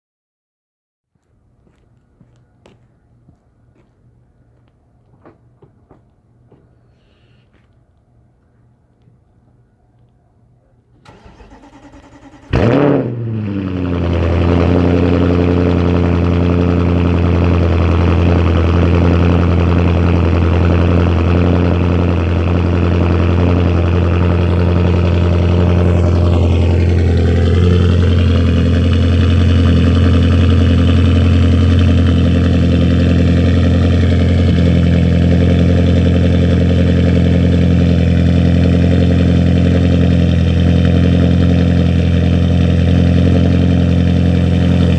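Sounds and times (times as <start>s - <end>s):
car engine starting with flare: 11.0s - 44.9s
loud engine idle: 13.7s - 44.9s.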